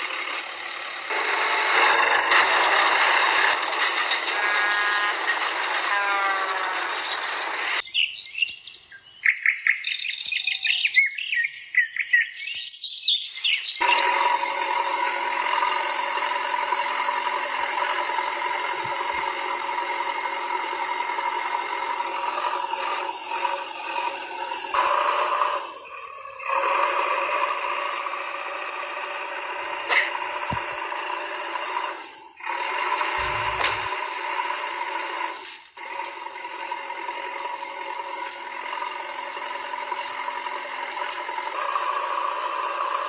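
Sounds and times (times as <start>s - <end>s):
birds chirping: 6.2s - 15.0s, 20.6s - 30.8s.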